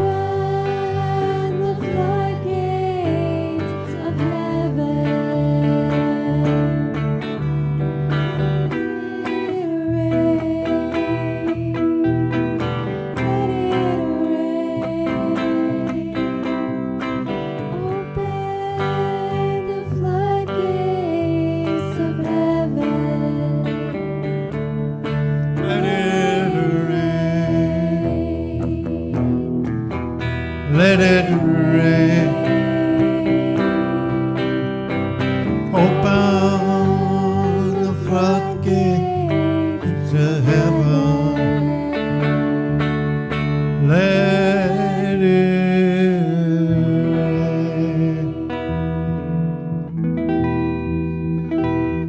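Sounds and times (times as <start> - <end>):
acoustic guitar strumming: 0.0 - 52.0
sustained melody line: 0.0 - 52.0
man singing: 25.6 - 29.3, 30.6 - 34.4, 35.6 - 42.3, 43.8 - 48.9.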